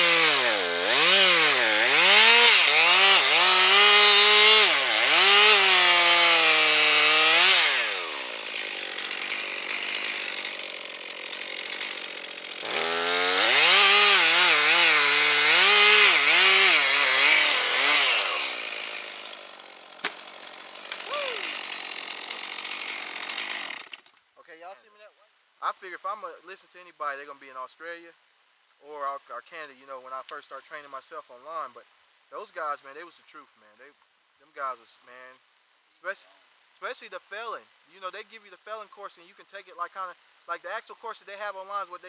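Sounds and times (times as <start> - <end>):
chainsaw running: 0.0 - 24.2.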